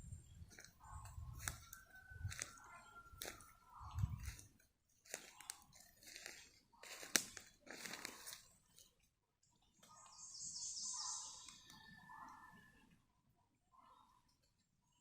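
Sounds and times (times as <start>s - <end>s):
footsteps crunching on forest floor: 0.4s - 8.9s.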